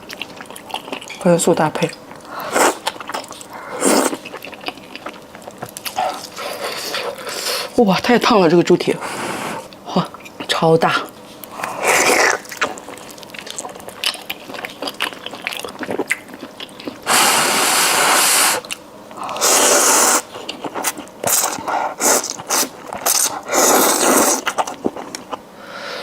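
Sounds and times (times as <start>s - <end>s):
hissing rushes of air: 17.1s - 18.6s.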